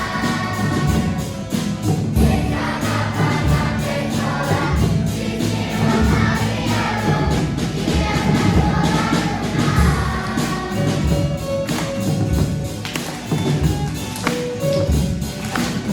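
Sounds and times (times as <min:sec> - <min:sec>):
group of voices singing: 0:00.0 - 0:11.7
instrumental accompaniment: 0:00.0 - 0:15.9.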